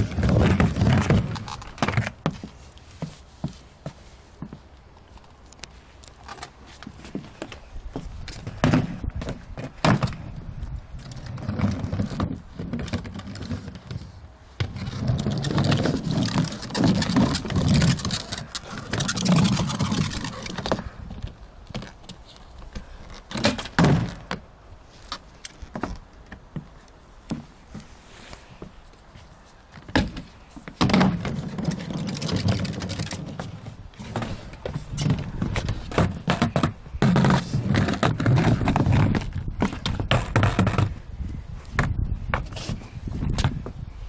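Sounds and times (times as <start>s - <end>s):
skateboard clacking on ground: 0.0s - 2.5s, 11.0s - 24.5s, 29.8s - 40.9s
skateboard rolling on wet pavement: 0.0s - 2.5s, 8.4s - 10.4s, 11.0s - 24.5s, 30.8s - 41.0s.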